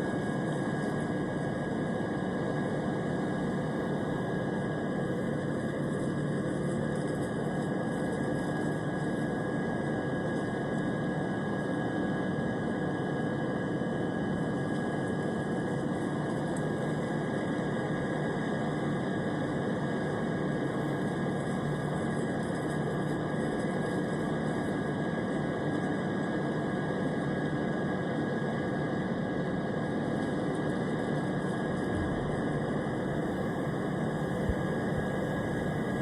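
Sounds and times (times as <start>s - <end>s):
faint high whine: 0.0s - 36.0s
airplane engine drone: 26.8s - 36.0s.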